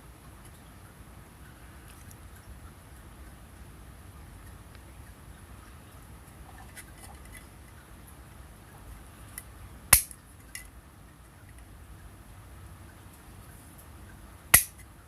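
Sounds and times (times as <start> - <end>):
sharp clink: 9.9 - 10.2, 14.6 - 14.8.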